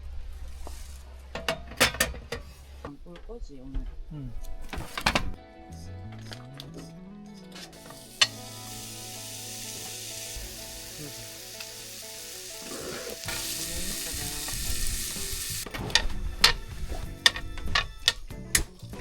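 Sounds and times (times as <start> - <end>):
food sizzling in a pan: 7.7 - 19.0
utensil clicking against pan: 17.2 - 18.9.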